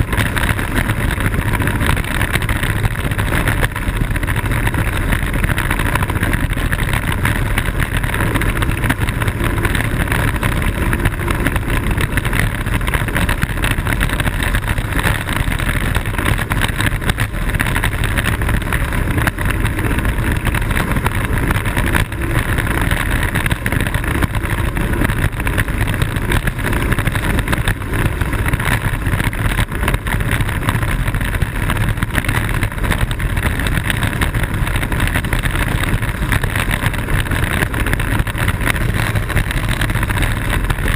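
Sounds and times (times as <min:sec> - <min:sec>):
wheel rumble on pavement: 0:00.0 - 0:40.9
wind rushing on microphone: 0:00.0 - 0:40.9.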